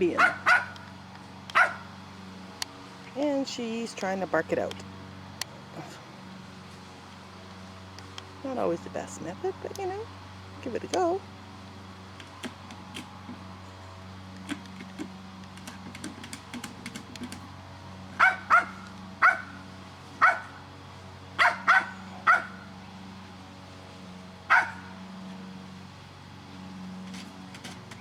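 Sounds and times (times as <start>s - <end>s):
dog barking: 0.2s - 0.8s, 1.5s - 1.9s, 18.2s - 19.6s, 20.2s - 20.6s, 21.4s - 22.6s, 24.5s - 24.9s.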